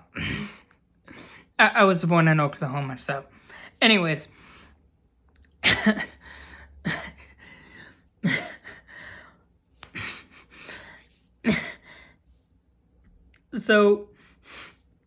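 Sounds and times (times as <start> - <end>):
person gasping and huffing: 0.0 - 1.5, 6.0 - 12.1.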